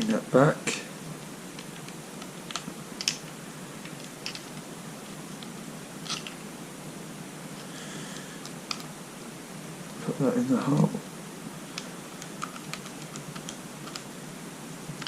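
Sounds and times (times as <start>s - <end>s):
small parts clicking and tapping: 1.2s - 4.7s, 5.4s - 6.4s, 8.4s - 8.9s, 11.7s - 14.1s.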